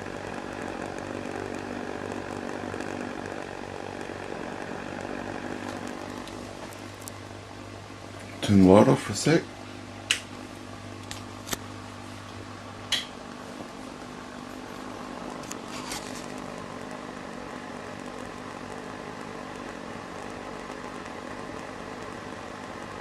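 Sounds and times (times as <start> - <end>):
jet burner hissing: 0.0 - 23.0
low electrical hum: 0.0 - 23.0
sharp clicks: 10.1 - 10.3.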